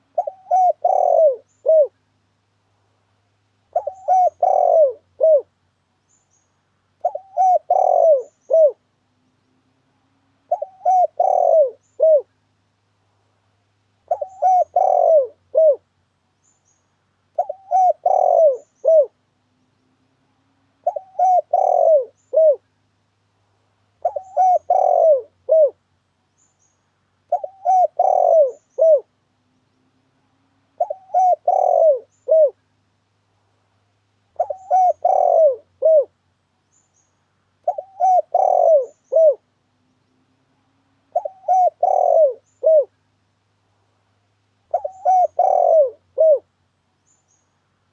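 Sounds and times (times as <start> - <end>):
dove cooing: 0.0 - 2.0, 3.7 - 5.5, 7.0 - 8.9, 10.4 - 12.3, 14.0 - 15.8, 17.4 - 19.2, 20.7 - 22.7, 24.0 - 25.8, 27.3 - 29.2, 30.7 - 32.6, 34.3 - 36.2, 37.6 - 39.5, 41.1 - 43.0, 44.7 - 46.5.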